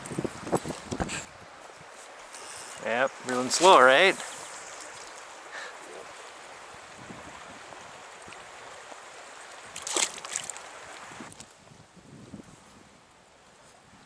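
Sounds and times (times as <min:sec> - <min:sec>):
flowing stream water: 0:00.0 - 0:11.9
sharp splashing or clattering: 0:09.7 - 0:10.7.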